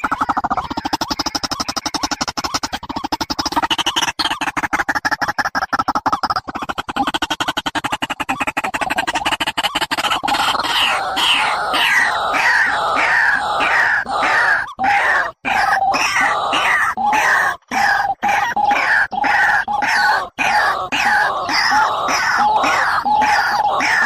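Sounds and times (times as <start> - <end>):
harsh bird call: 9.6 - 24.0.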